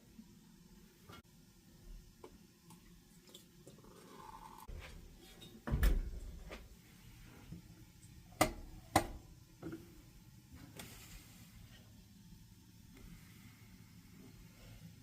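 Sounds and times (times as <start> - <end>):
appliance door thump: 5.7 - 6.2.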